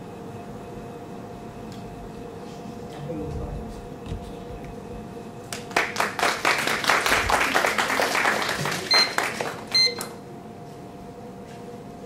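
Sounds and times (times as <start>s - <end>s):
audience applauding: 5.5s - 9.7s.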